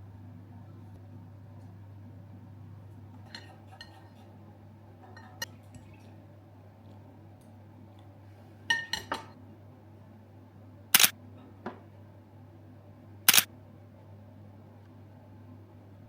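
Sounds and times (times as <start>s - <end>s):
dishes clinking: 3.2s - 4.4s, 5.0s - 6.1s, 8.7s - 9.4s.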